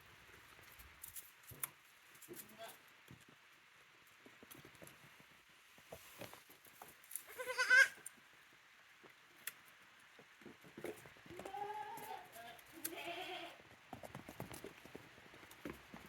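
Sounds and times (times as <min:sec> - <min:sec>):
goat kid bleating: 0:07.2 - 0:08.0, 0:11.3 - 0:13.6.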